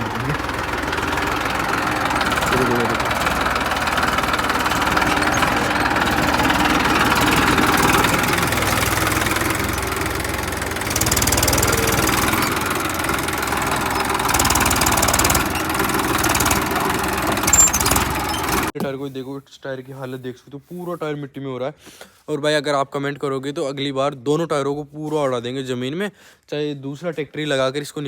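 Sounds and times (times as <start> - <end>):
tractor diesel engine clattering: 0.0 - 18.8.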